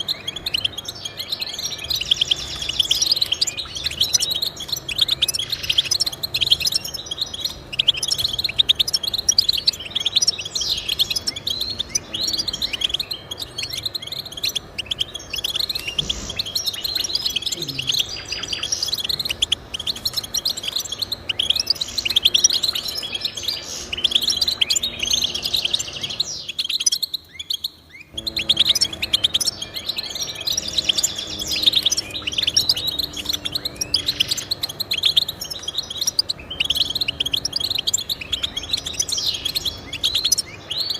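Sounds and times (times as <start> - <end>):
finch twittering and trills: 0.0 - 40.9.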